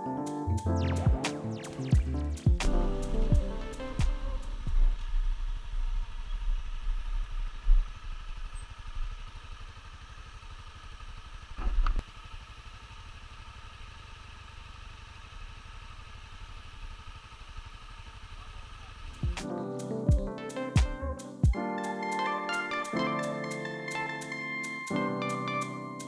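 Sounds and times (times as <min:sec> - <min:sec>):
sharp click: 0:02.6 - 0:03.1
motorcycle engine idling: 0:04.4 - 0:19.4.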